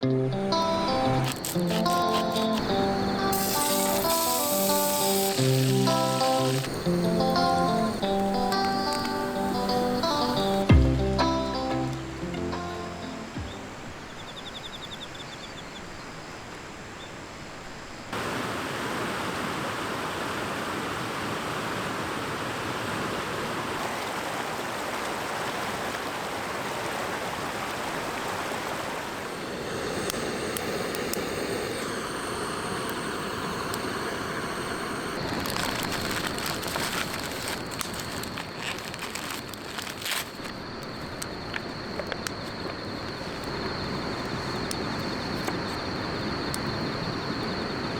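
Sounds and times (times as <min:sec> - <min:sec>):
campfire crackling and popping: 0:00.5 - 0:12.2, 0:29.4 - 0:45.7
steady outdoor rushing noise: 0:27.8 - 0:47.9.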